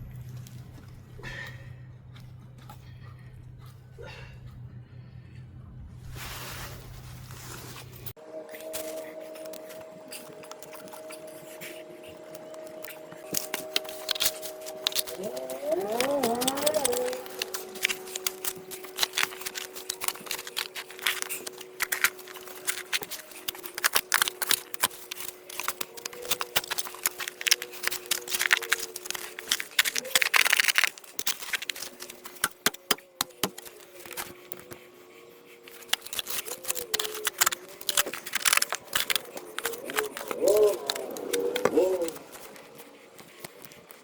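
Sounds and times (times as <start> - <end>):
hands clicking plastic parts: 9.4 - 34.8, 35.6 - 44.0.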